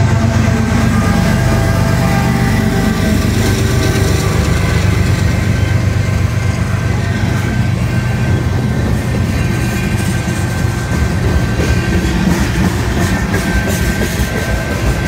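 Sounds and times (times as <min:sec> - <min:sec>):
freight train wheels rumbling on rail: 0:00.0 - 0:15.0.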